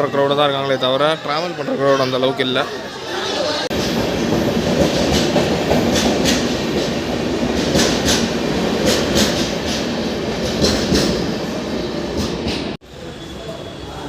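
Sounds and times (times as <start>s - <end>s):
train wheels clacking: 3.7s - 11.4s
train rumble: 3.7s - 13.2s.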